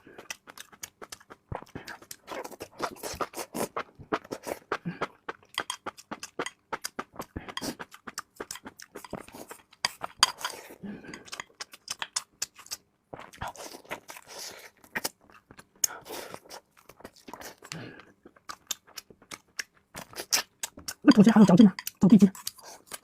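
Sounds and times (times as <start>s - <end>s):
wet chewing mouth sounds: 0.0s - 23.0s.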